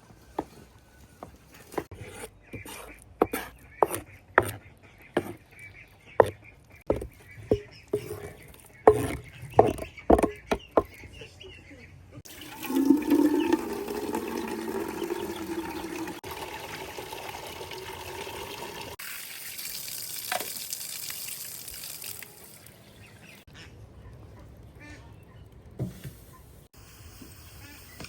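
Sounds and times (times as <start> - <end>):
water running and splashing: 12.2 - 23.4.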